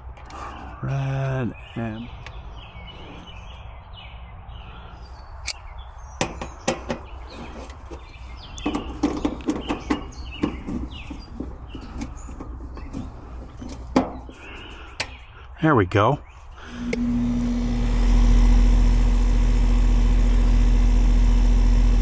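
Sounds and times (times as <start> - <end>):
birds chirping: 0.0 - 18.4
clicks and knocks of hands working: 6.2 - 15.3.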